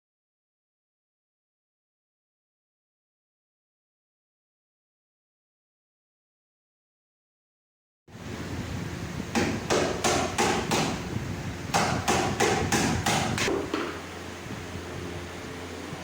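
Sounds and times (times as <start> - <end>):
hammer striking: 9.3 - 11.0, 11.7 - 14.0.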